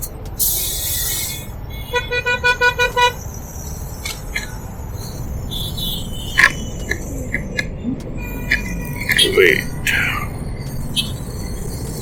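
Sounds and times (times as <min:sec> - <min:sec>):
rapid pulsed beeping: 0:02.6 - 0:12.0
scattered clicks: 0:06.4 - 0:09.3.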